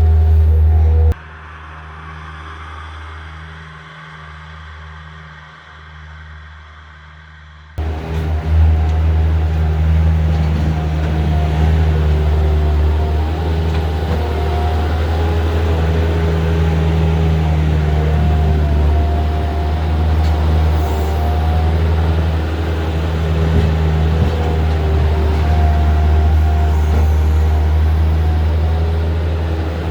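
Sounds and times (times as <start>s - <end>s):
loader diesel engine droning: 0.0s - 1.2s, 7.8s - 29.9s.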